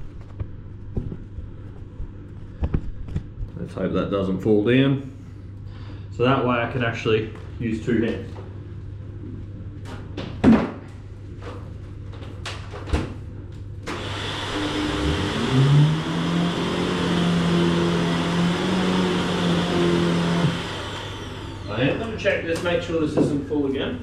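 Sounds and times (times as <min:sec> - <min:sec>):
vacuum motor humming: 0:13.9 - 0:22.2.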